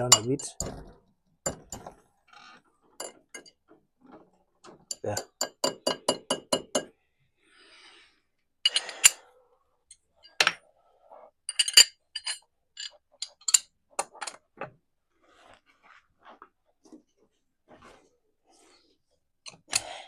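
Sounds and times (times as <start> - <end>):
hand tools clicking and clinking: 11.5 - 14.4.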